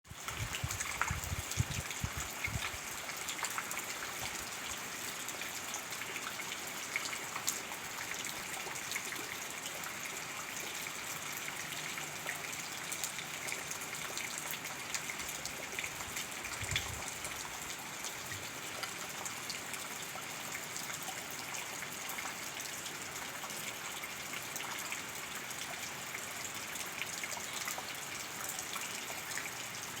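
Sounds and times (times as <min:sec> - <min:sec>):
wind gusts hitting microphone: 0:00.3 - 0:02.8, 0:16.6 - 0:17.0.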